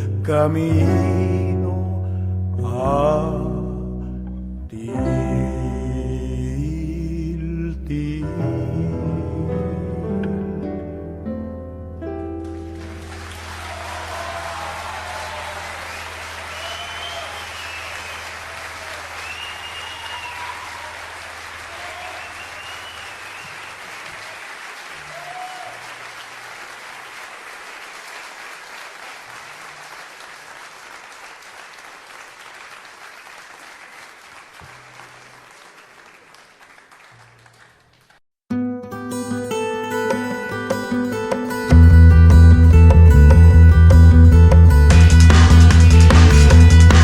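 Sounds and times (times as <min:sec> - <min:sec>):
audience applauding: 0:12.4 - 0:38.2
people shouting: 0:13.6 - 0:19.2, 0:19.8 - 0:22.4.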